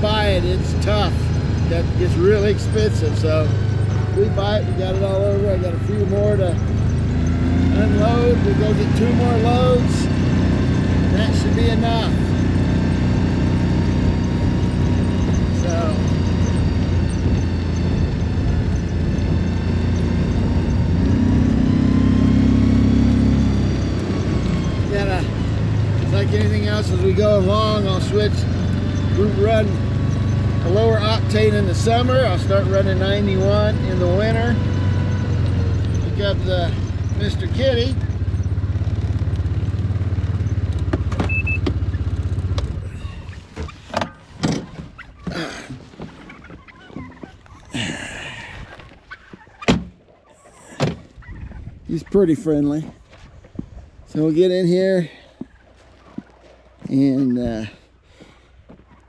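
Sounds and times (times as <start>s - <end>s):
utility vehicle engine running: 0.0s - 59.0s.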